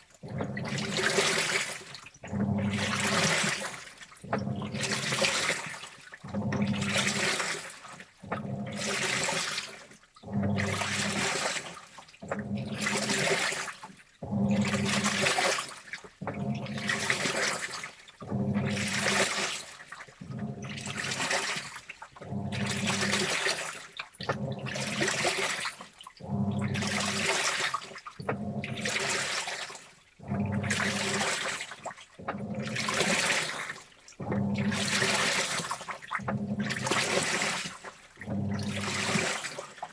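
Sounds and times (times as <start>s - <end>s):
washing machine drum churning: 0.0s - 39.9s
water sloshing: 0.0s - 39.9s
low motor hum: 0.2s - 1.0s, 8.3s - 8.9s, 16.2s - 17.1s, 18.2s - 19.0s, 20.2s - 21.1s, 22.2s - 23.2s, 24.2s - 25.1s, 26.2s - 27.2s, 28.2s - 29.1s, 30.2s - 31.4s, 34.2s - 35.2s, 38.2s - 39.4s.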